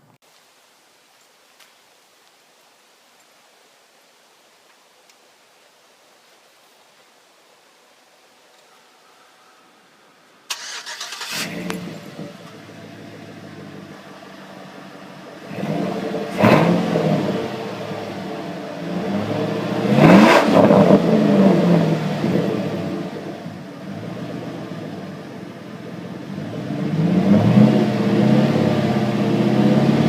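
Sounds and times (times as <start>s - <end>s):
truck engine cranking: 10.5s - 18.0s
truck engine idling and revving: 10.6s - 30.0s.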